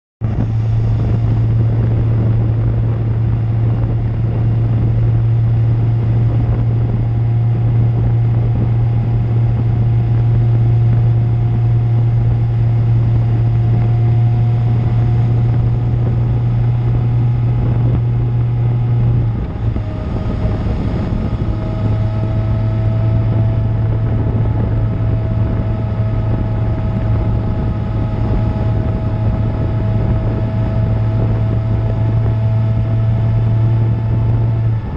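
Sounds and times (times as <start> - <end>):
motorcycle engine running: 0.2 - 34.9.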